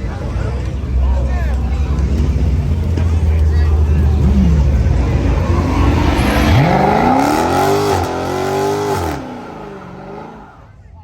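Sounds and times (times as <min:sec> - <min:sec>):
car engine revving: 0:02.0 - 0:10.6.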